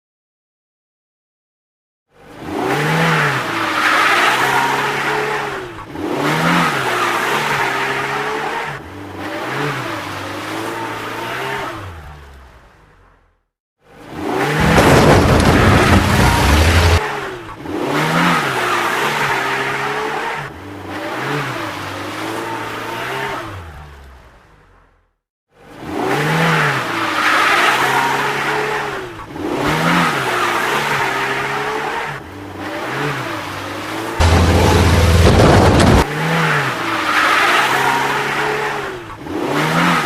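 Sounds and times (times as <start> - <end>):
vehicle engine revving: 14.1 - 24.2, 29.3 - 40.0.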